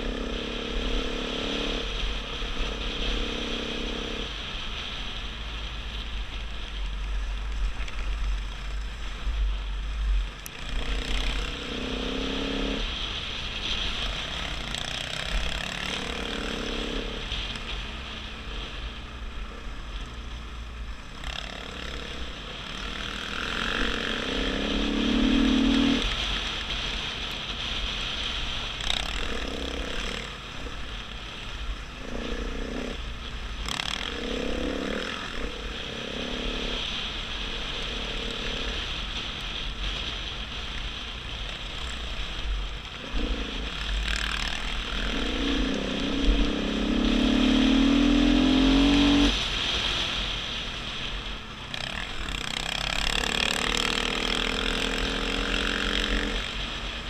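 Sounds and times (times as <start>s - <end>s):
dirt bike engine revving: 0.0s - 4.4s, 10.2s - 17.5s, 21.0s - 26.9s, 27.6s - 39.2s, 41.5s - 57.0s.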